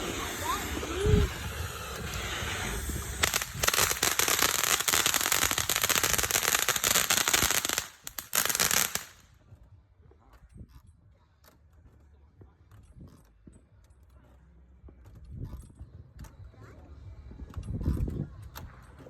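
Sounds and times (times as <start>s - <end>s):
fireworks hissing: 0.0s - 9.2s
fireworks crackling pops: 0.0s - 9.4s.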